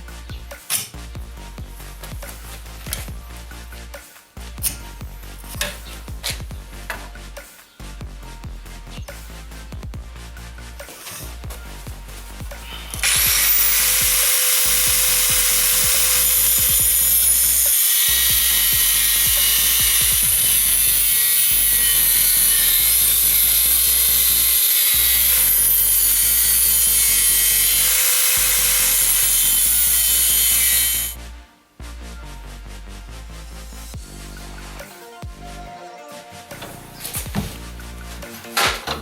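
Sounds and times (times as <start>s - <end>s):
electronic music: 0.0s - 39.0s
power tool grinding steel: 12.6s - 31.2s.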